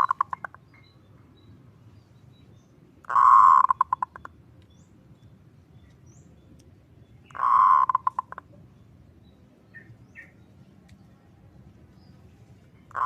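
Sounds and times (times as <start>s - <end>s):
dove cooing: 0.0s - 0.5s, 3.1s - 4.2s, 7.3s - 8.4s.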